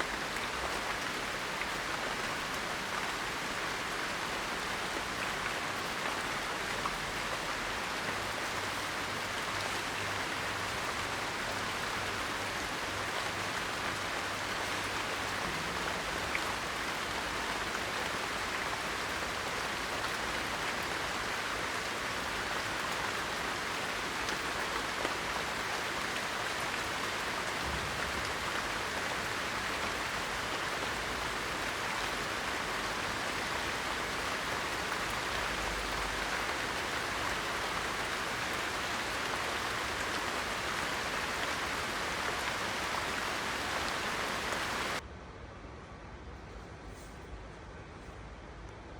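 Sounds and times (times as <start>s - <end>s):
steady rain hiss: 0.0s - 45.0s.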